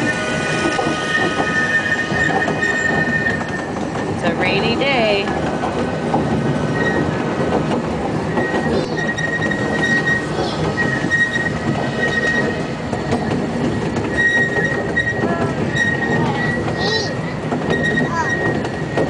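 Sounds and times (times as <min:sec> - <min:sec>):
steam train rumbling: 0:00.0 - 0:19.0
thin high squeal: 0:08.3 - 0:12.6.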